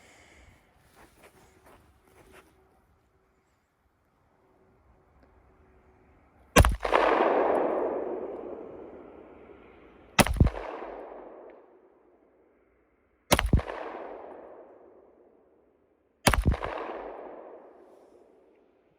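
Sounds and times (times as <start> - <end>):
gunshots with rolling echo: 6.6 - 18.7.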